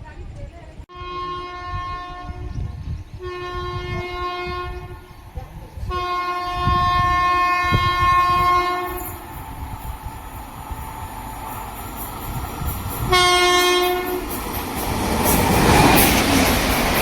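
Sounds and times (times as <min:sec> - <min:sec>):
rumble of moving train: 0:00.0 - 0:17.0
train horn blasts: 0:00.9 - 0:02.6, 0:03.2 - 0:05.1, 0:05.9 - 0:09.4, 0:13.0 - 0:14.4.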